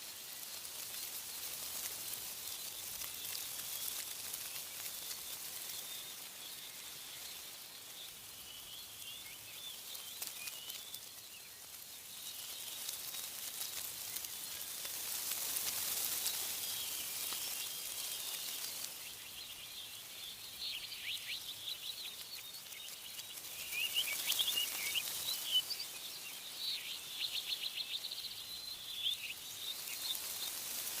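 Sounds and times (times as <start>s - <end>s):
songbirds chirping: 0.0s - 31.0s
wind rustling leaves: 0.0s - 31.0s.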